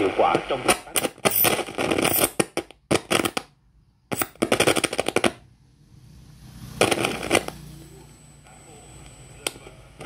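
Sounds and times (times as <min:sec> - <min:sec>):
radio speaker crackling: 0:00.0 - 0:03.5, 0:06.8 - 0:07.7.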